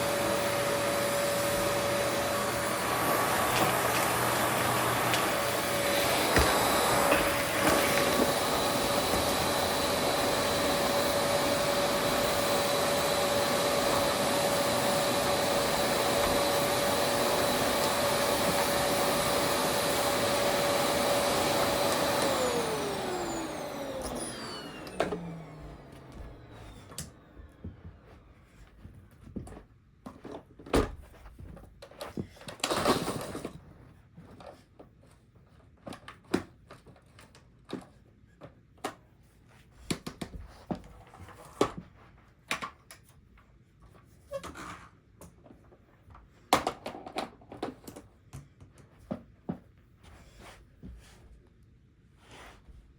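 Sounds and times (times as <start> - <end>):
vacuum cleaner whine: 0.0 - 28.8, 32.6 - 33.5.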